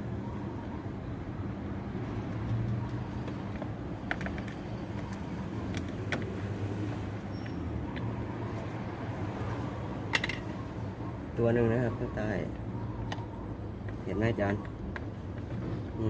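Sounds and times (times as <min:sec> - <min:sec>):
vehicle engine humming: 0:02.3 - 0:11.4.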